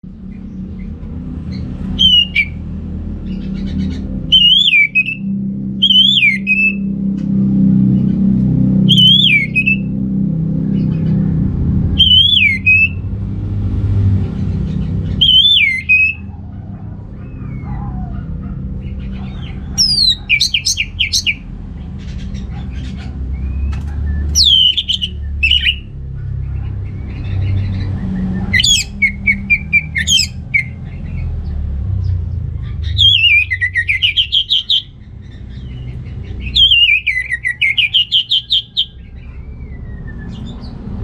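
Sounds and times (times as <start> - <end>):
low background rumble: 0.0 - 41.0
thrush singing: 2.0 - 2.6, 4.3 - 6.9, 8.9 - 9.9, 12.0 - 13.0, 15.2 - 16.2, 19.4 - 21.4, 24.3 - 25.9, 28.5 - 30.8, 33.0 - 34.9, 36.4 - 39.0.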